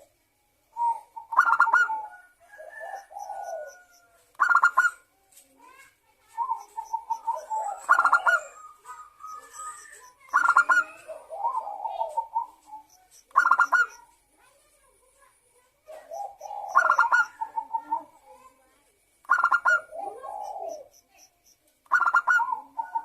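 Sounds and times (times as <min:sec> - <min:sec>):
dove cooing: 0:00.7 - 0:05.1, 0:06.3 - 0:14.1, 0:15.9 - 0:18.4, 0:19.2 - 0:21.0, 0:21.9 - 0:23.0.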